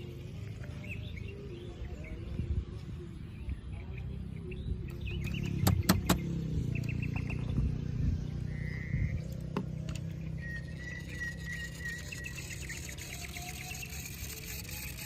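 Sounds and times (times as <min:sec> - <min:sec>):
low engine rumble: 0:00.0 - 0:15.0
bird-like chirps: 0:03.1 - 0:15.0
thin high tone: 0:10.4 - 0:15.0.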